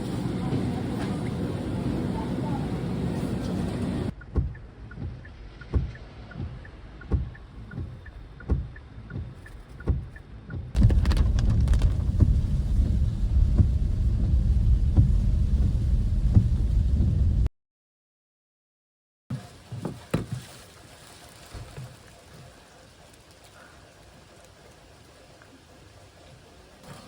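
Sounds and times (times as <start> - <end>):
heavy rain: 10.8 - 17.5
wind buffeting the microphone: 10.8 - 17.5.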